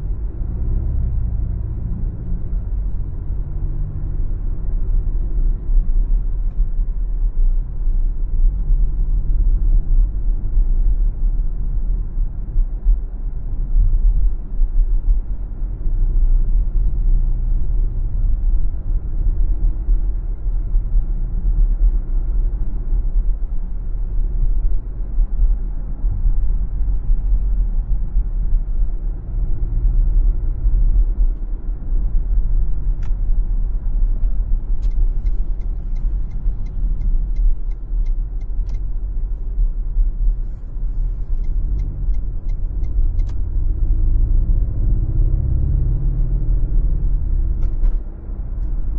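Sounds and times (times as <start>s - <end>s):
car tyres and engine rumbling: 0.0s - 48.9s
light evenly spaced ticks: 32.1s - 44.0s.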